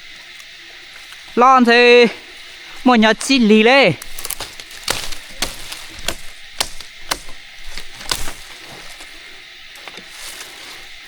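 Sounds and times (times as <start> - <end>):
sharp strikes on wood: 4.2 - 8.5.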